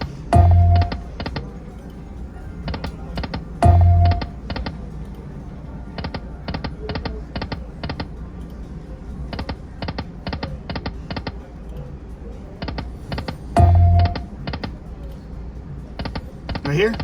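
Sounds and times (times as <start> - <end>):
slot machine background music: 0.0 - 5.5, 12.8 - 14.8, 16.4 - 17.0.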